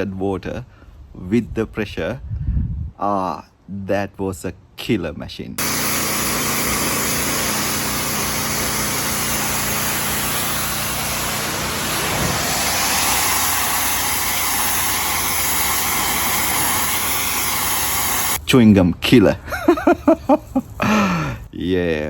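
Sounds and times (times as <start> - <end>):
engine drone: 5.6 - 18.4
loud spray hiss: 5.6 - 18.4.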